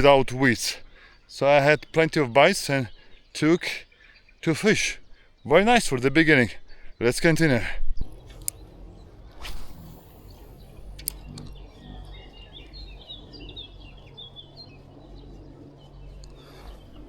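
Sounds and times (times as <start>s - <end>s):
low outdoor background noise: 0.0s - 17.0s
small bird chirping: 1.6s - 17.0s
rush of noise: 8.0s - 17.0s.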